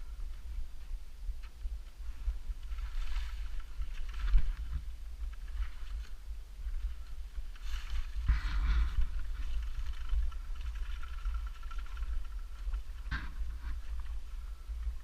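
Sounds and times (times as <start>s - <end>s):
vehicle low rumble: 0.0s - 15.0s
wind noise on microphone: 0.0s - 15.0s.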